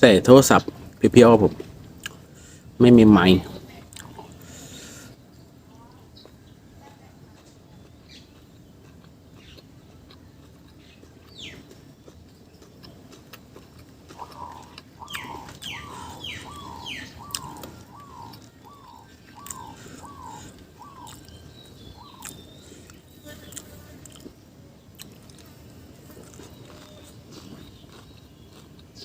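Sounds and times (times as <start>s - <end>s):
bird calling repeated notes: 14.1s - 23.6s.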